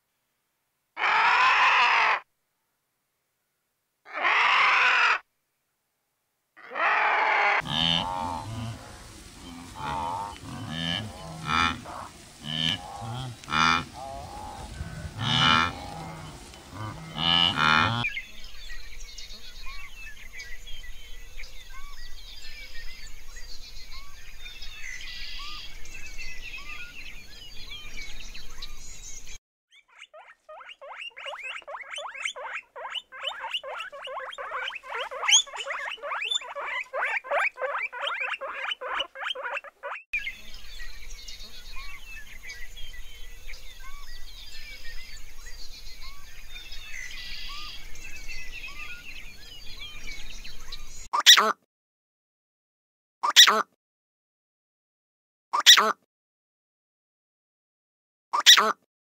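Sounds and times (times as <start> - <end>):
wildebeest nasal grunting call: 6.6 - 18.1
guinea pigs squeaking: 29.7 - 40.0.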